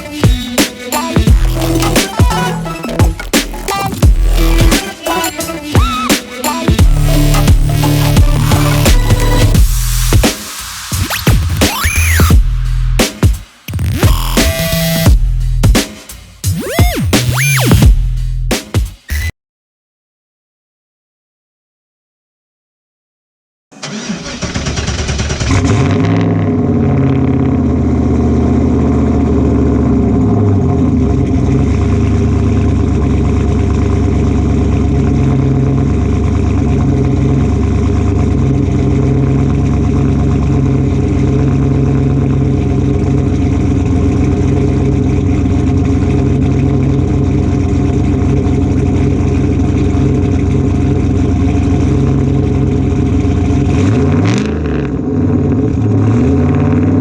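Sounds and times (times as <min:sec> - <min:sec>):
engine running loudly: 0:25.3 - 0:57.0.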